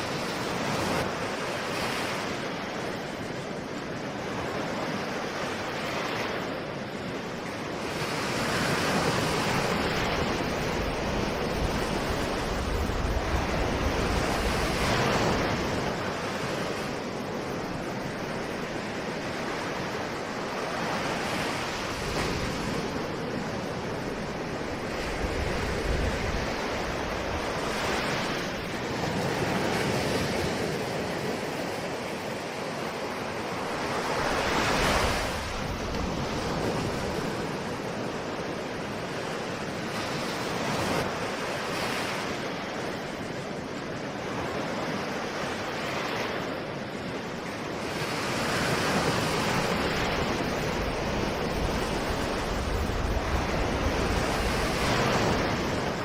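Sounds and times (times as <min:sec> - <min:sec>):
ocean waves breaking: 0:00.0 - 0:56.0
low wind rumble: 0:09.0 - 0:29.9, 0:49.0 - 0:56.0.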